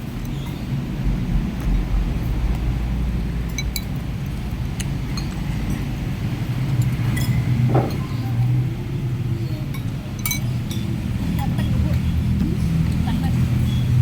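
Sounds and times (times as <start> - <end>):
low rumble: 0.0 - 9.4
spoon clinking against bowl: 3.5 - 5.9, 6.7 - 8.4, 9.7 - 10.9.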